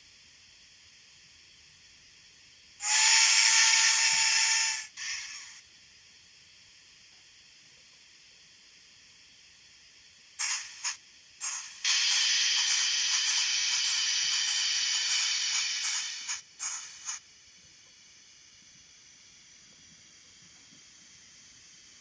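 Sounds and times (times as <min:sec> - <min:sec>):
faint steady hiss: 0:00.0 - 0:22.0
steam release hiss bursts: 0:02.8 - 0:05.6, 0:10.2 - 0:22.0.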